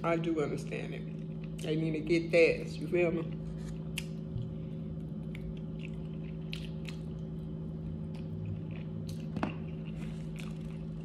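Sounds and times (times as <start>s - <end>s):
steady low hum: 0.0s - 11.0s
person chewing food: 3.3s - 11.0s.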